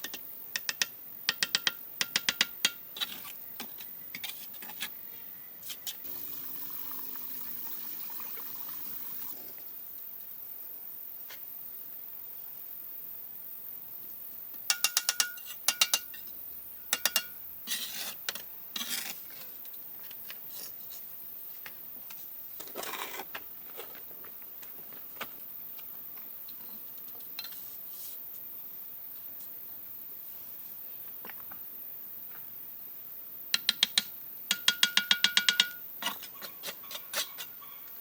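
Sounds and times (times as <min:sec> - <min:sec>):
rough scraping: 0:17.7 - 0:18.2, 0:18.8 - 0:19.4.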